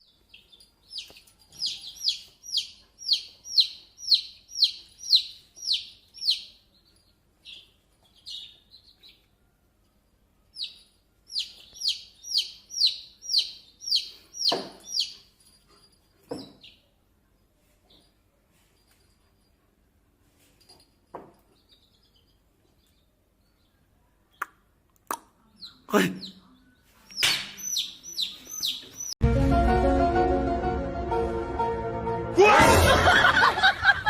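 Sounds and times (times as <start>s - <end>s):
bird chirping: 0.0s - 18.2s, 21.2s - 24.8s, 25.4s - 29.2s.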